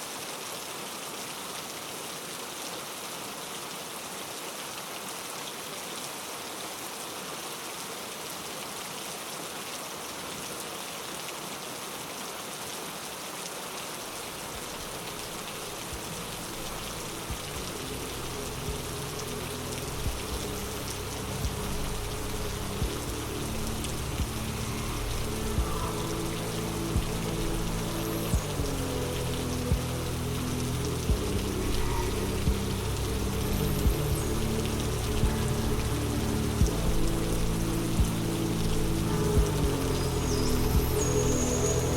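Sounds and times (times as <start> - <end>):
steady rain falling: 0.0 - 41.9
soft low sustained music: 14.6 - 41.9.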